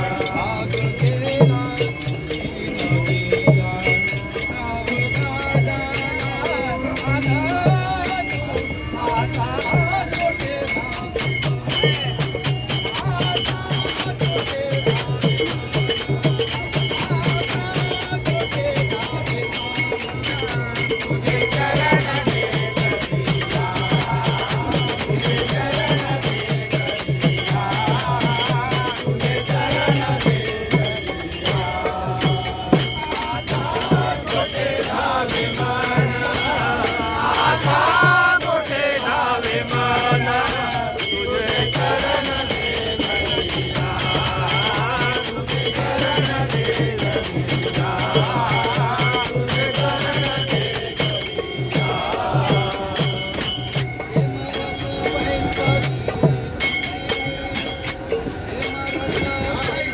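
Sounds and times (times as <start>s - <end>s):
jingling cymbals: 0.0s - 59.9s
voices chanting: 0.0s - 59.9s
fast drum beat: 7.2s - 54.4s.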